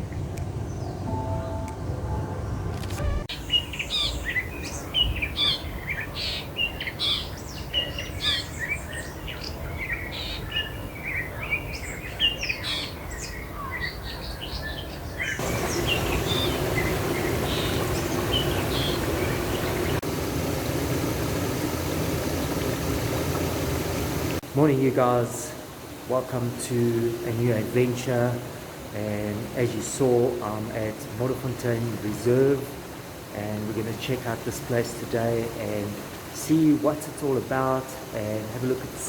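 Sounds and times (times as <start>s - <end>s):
wild birds chirping: 0.0s - 1.6s, 3.3s - 39.0s
steady rushing noise with hum: 15.4s - 39.0s.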